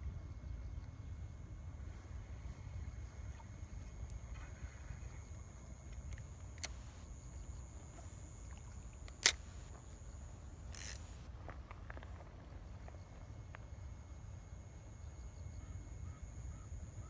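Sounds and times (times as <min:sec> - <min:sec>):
sharp clicks: 0:05.9 - 0:11.3.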